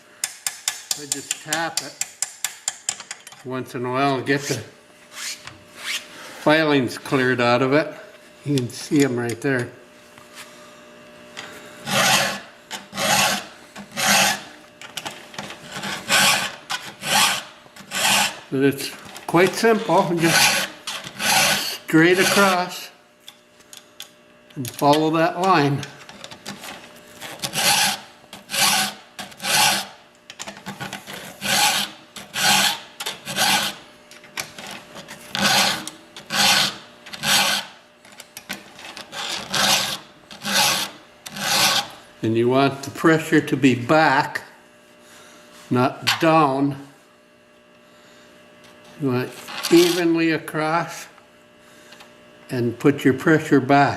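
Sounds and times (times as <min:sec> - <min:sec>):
file rasping on chainsaw chain: 0:11.8 - 0:14.5, 0:15.6 - 0:18.4, 0:19.4 - 0:22.8, 0:27.2 - 0:30.0, 0:31.1 - 0:33.8, 0:35.3 - 0:37.8, 0:39.1 - 0:42.0, 0:49.7 - 0:50.1.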